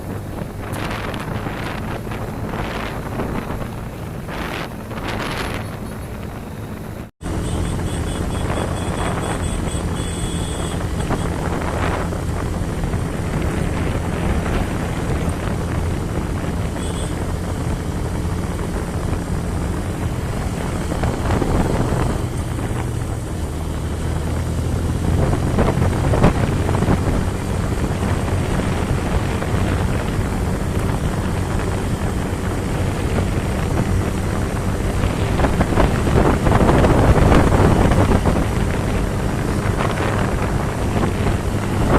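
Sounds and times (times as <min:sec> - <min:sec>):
motorcycle engine running: 0:00.0 - 0:41.9
wind buffeting microphone: 0:00.0 - 0:41.9.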